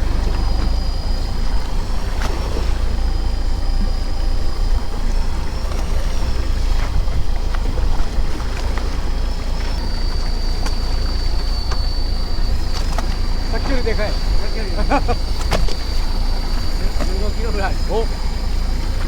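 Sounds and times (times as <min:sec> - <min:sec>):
boat engine low rumble: 0:00.0 - 0:19.0
thin high whine: 0:00.0 - 0:19.0
wind on microphone: 0:03.9 - 0:17.9.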